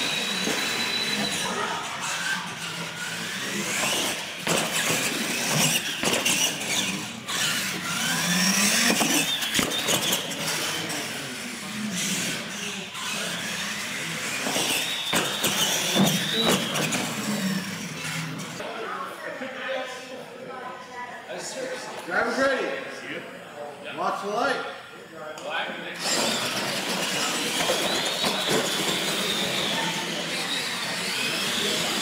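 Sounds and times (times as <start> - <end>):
electric motors whining: 0.0 - 18.6, 25.8 - 32.0.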